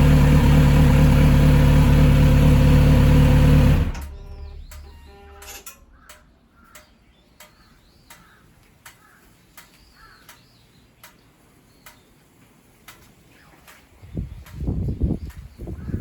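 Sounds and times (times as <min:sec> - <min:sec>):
faint regular ticking: 0:05.6 - 0:12.2, 0:12.8 - 0:14.6.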